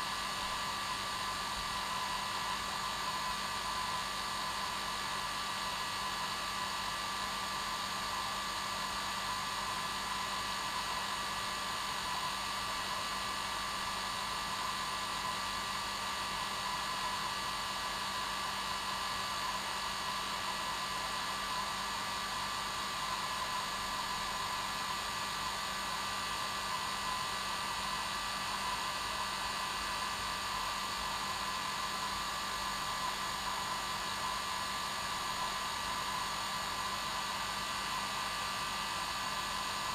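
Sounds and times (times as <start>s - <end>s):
hair dryer running: 16.7s - 39.9s.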